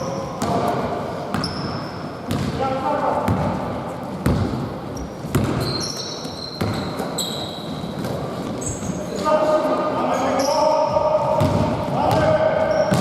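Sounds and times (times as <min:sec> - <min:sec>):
sneakers squeaking on floor: 0:00.0 - 0:02.6, 0:03.2 - 0:09.3, 0:10.0 - 0:13.0
basketball bouncing on court: 0:00.3 - 0:02.6, 0:03.2 - 0:08.6, 0:10.9 - 0:13.0.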